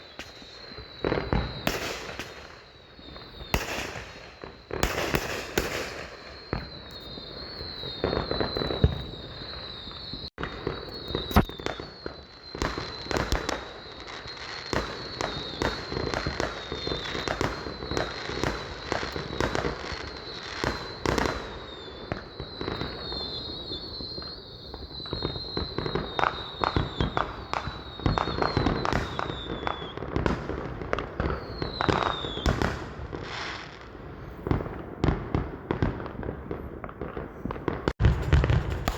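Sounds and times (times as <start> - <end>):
fireworks bangs and crackle: 0.0 - 38.9
high wavering whistle: 6.0 - 30.0.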